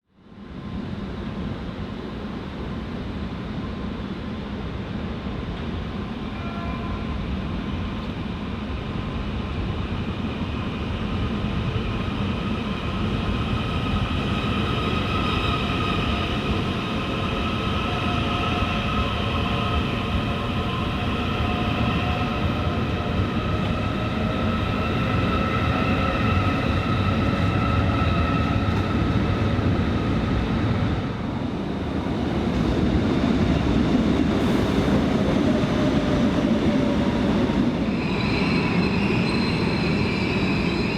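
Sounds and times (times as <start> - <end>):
train rumbling on track: 0.2 - 40.9.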